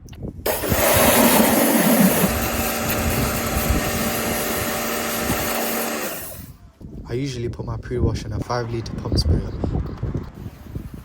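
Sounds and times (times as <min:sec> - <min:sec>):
pressure washer running: 0:00.5 - 0:06.5.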